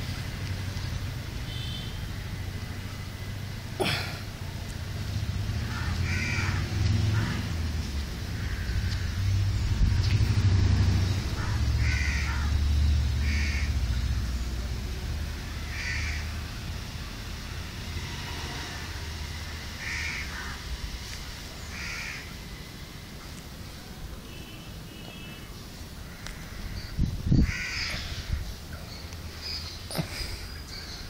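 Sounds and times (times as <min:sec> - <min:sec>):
crow cawing: 0:05.6 - 0:07.4, 0:08.4 - 0:08.8, 0:11.4 - 0:12.5, 0:13.2 - 0:13.7, 0:15.7 - 0:16.2, 0:19.8 - 0:20.6, 0:21.7 - 0:22.3, 0:26.0 - 0:26.8, 0:27.5 - 0:28.1.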